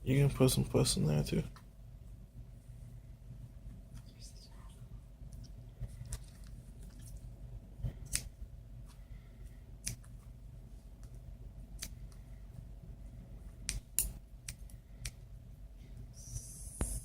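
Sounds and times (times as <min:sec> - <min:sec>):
scissors snipping: 0:09.8 - 0:10.1.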